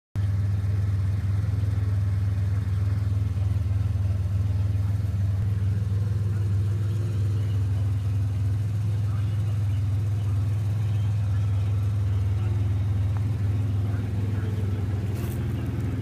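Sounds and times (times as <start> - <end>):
car engine idling: 0.2 - 16.0.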